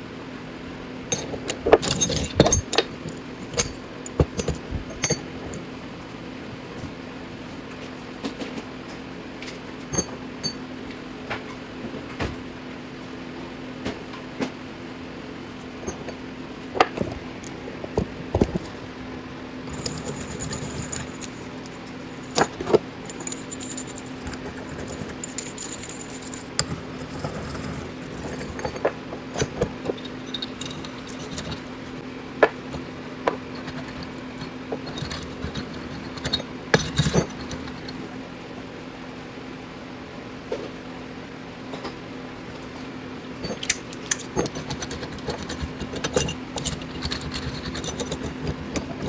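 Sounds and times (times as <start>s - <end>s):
steady low hum: 0.0s - 49.0s
steel tools clinking against metal: 1.1s - 5.6s, 19.7s - 32.0s, 33.3s - 38.0s, 43.4s - 49.0s.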